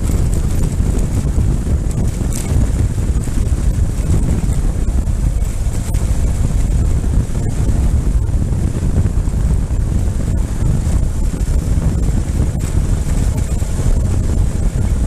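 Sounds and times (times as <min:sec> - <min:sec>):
motorcycle engine rumble: 0:00.0 - 0:15.0
wind buffeting on microphone: 0:00.0 - 0:15.0.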